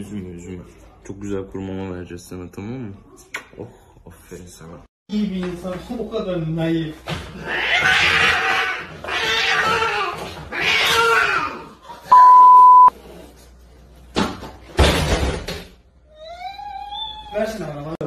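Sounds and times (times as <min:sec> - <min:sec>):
cat hissing and yowling: 0:07.3 - 0:12.1
loud steady beep: 0:12.1 - 0:12.9.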